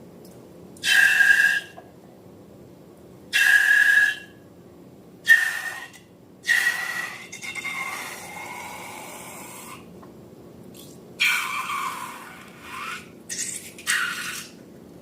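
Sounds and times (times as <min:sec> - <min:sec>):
air squealing out of balloon: 0:00.8 - 0:01.8, 0:06.5 - 0:09.8, 0:11.2 - 0:14.6.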